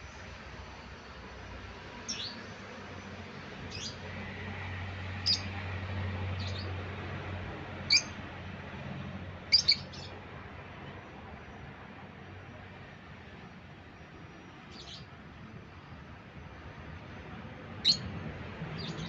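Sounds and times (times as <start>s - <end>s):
lovebird chirping: 5.2s - 5.5s, 7.9s - 8.1s, 9.5s - 10.1s, 17.8s - 18.1s.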